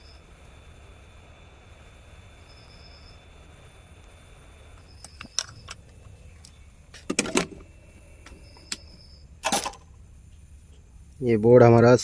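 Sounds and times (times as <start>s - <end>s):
low steady hum: 0.0s - 12.0s
small tools clicking and clattering: 9.4s - 9.8s.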